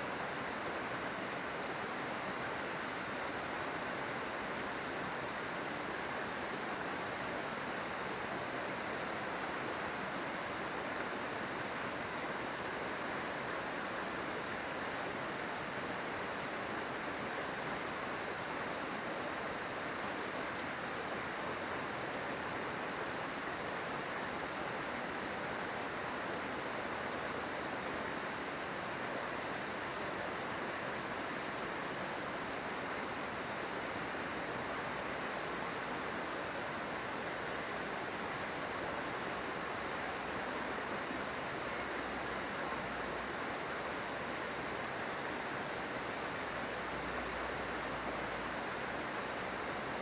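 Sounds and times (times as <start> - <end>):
river water rushing: 0.0 - 50.0.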